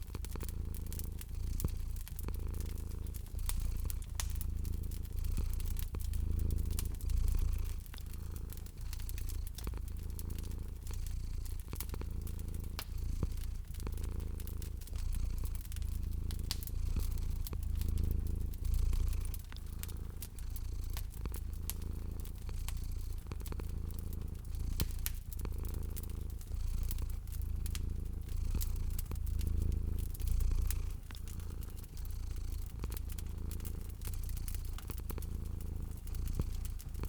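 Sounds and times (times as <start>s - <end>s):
cat purring: 0.0s - 37.0s
wood fire crackling: 0.0s - 37.0s.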